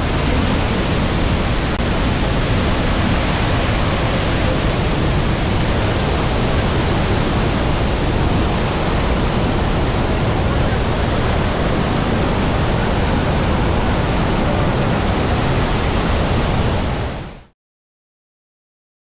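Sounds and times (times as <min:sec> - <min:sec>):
waterfall rushing: 0:00.0 - 0:17.5.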